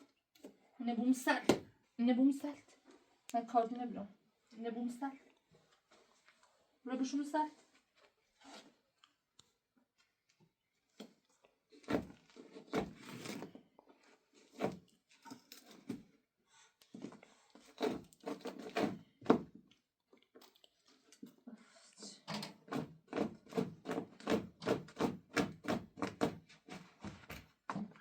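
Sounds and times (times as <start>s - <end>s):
knocks and rubbing from hand work: 11.8s - 13.6s, 14.4s - 16.1s, 16.9s - 19.6s, 22.3s - 28.0s.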